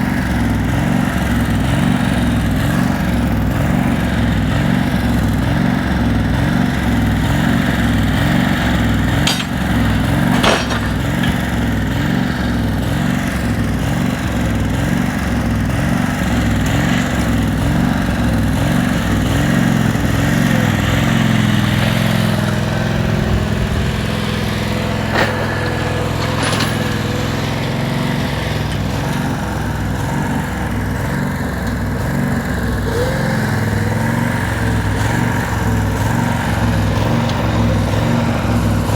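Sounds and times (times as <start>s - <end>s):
tractor engine running: 0.0s - 38.9s
sharp metallic clinks: 9.2s - 11.5s.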